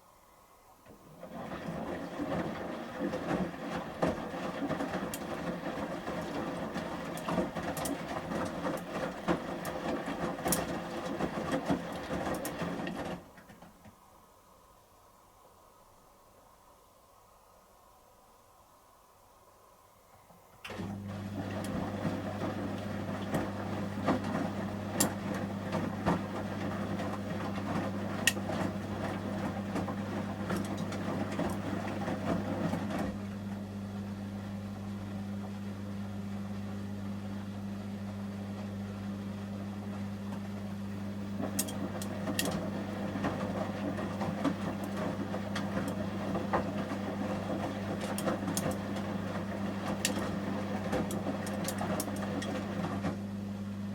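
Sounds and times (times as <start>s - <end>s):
washing machine drum motor humming: 0.8s - 13.9s, 20.6s - 53.9s
wet laundry swishing in drum: 0.9s - 13.7s, 20.6s - 33.7s, 39.8s - 53.4s.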